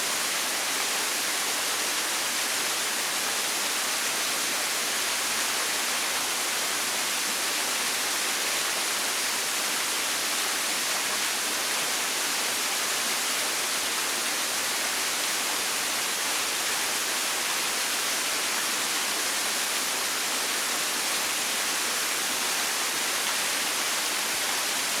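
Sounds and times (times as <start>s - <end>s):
waterfall hissing: 0.0s - 25.0s.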